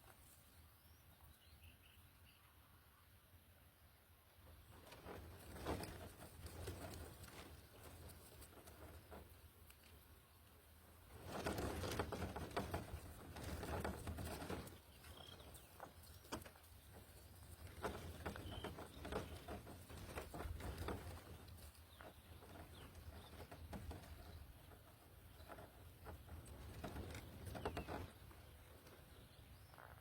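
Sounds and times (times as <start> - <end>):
faint high bird chirps: 0.5 - 4.1
birds rustling in a nest: 4.4 - 30.0.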